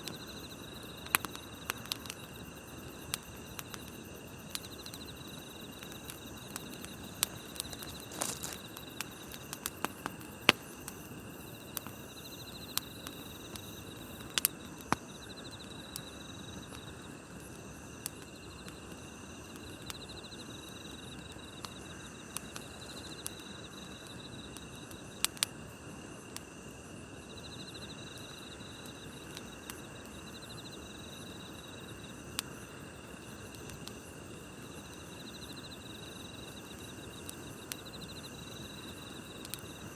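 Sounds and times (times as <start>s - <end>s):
insect pulsed chirps: 0.0s - 17.2s
campfire crackling: 0.0s - 39.9s
insects trilling: 0.0s - 39.9s.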